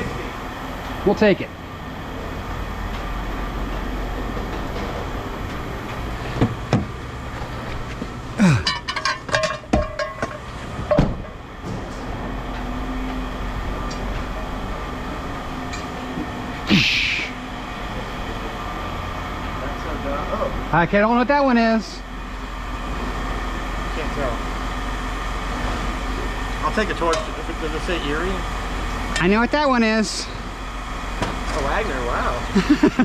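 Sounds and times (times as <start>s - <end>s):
machinery rumbling: 0.0s - 33.0s
metal clanks: 8.5s - 11.3s.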